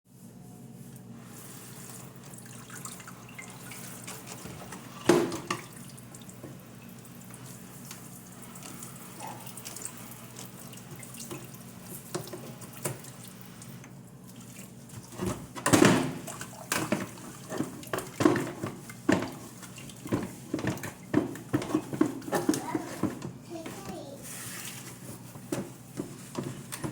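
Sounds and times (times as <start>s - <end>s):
tap water running into sink: 1.8s - 23.4s.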